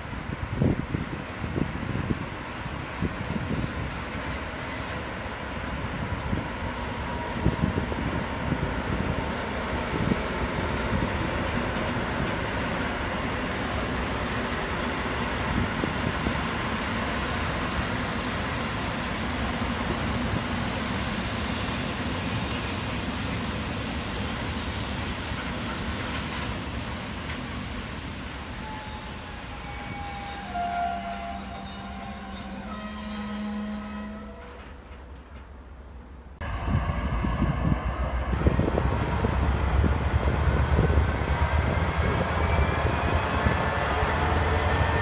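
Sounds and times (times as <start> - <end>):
train wheels on rail: 0.2 - 45.0
high-pitched squeal: 20.3 - 34.7.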